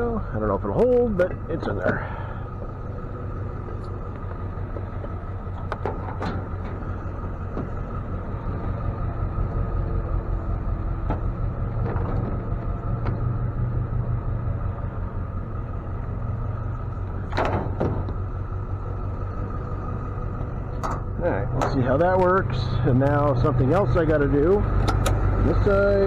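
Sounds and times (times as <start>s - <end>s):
truck engine idling: 0.0s - 26.0s
light clicks and knocks: 3.7s - 8.0s, 24.7s - 25.3s.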